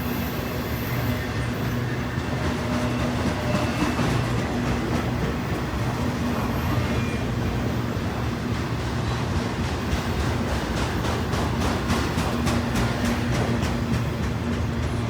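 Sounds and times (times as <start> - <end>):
freight train rolling by: 0.0 - 15.0.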